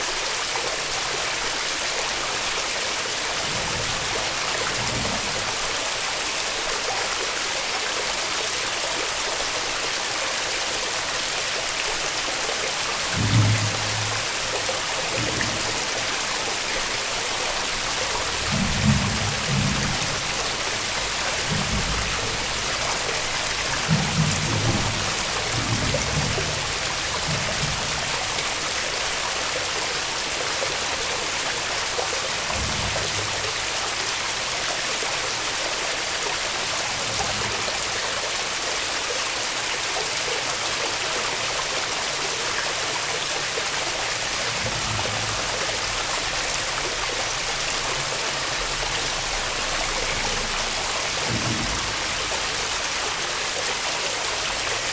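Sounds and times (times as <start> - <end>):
waterfall roaring: 0.0 - 54.9.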